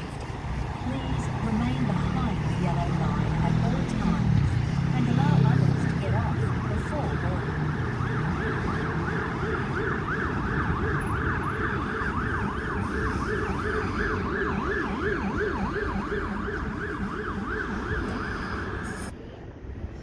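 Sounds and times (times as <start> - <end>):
siren yelping: 5.2 - 19.1.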